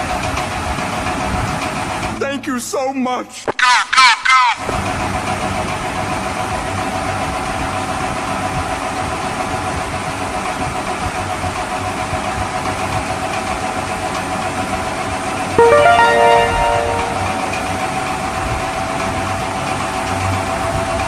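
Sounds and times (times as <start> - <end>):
held electronic tones: 15.6 - 17.5.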